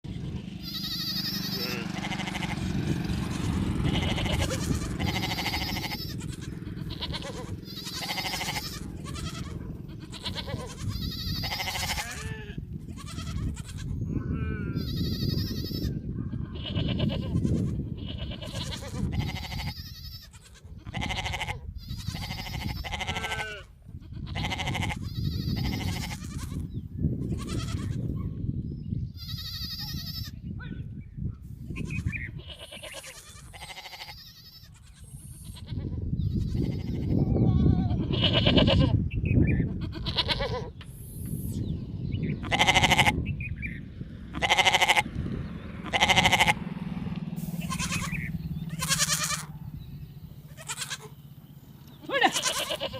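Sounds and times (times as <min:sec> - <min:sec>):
steady low rumble: 0:00.1 - 0:19.9, 0:35.0 - 0:52.8
sheep bleating: 0:00.2 - 0:26.7, 0:27.3 - 0:28.0, 0:29.2 - 0:30.4, 0:31.8 - 0:39.0, 0:39.7 - 0:40.8, 0:42.4 - 0:43.2, 0:44.3 - 0:45.1, 0:45.8 - 0:46.6, 0:47.5 - 0:49.5, 0:50.4 - 0:51.3, 0:52.0 - 0:52.9.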